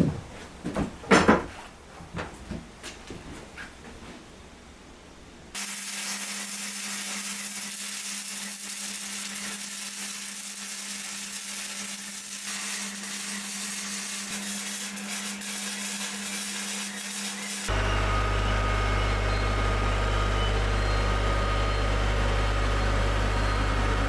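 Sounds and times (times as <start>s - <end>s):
power tool running: 5.6s - 24.0s.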